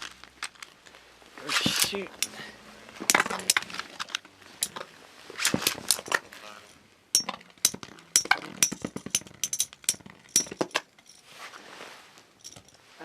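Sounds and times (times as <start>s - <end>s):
spinning tops clacking together: 7.2s - 10.9s.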